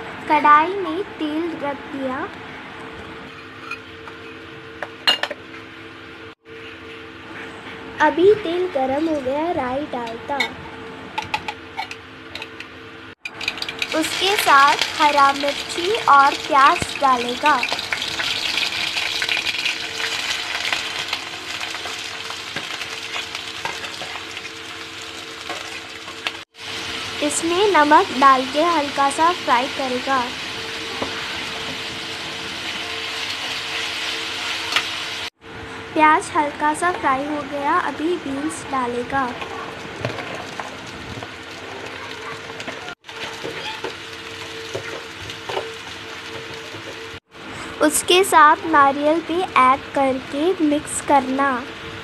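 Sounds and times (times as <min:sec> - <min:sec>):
steady hum: 0:00.0 - 0:41.9
onions sizzling in hot oil: 0:13.3 - 0:35.4, 0:40.0 - 0:47.2.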